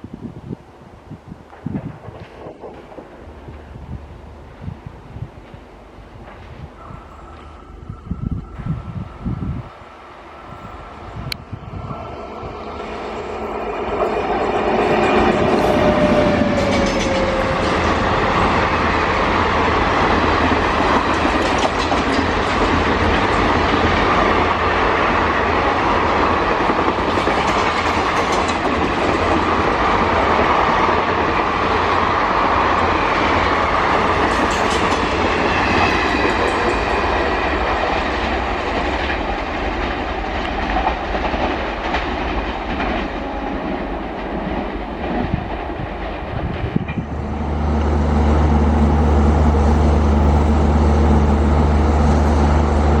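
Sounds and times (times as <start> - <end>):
train wheels clattering on rails: 1.5 - 7.6, 12.6 - 48.0.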